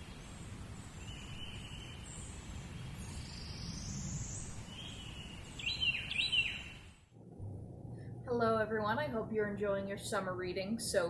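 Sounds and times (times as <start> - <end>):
birds singing: 0.0 - 6.9
low outdoor rumble: 7.0 - 11.0.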